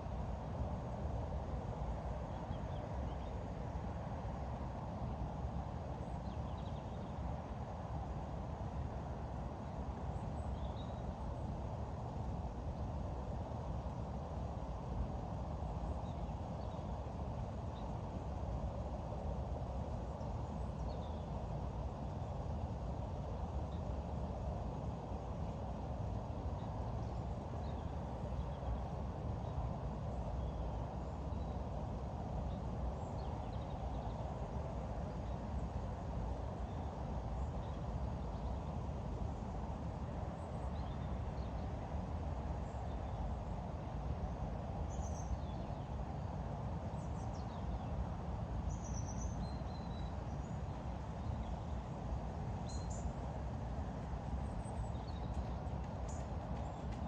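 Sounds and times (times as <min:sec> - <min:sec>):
faint bird chirps: 0:52.6 - 0:53.1.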